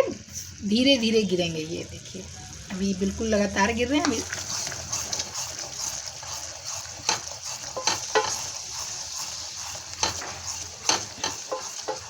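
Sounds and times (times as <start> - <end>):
syrup boiling in a pan: 2.9 - 12.0
spoon clicking against pan: 10.9 - 12.0.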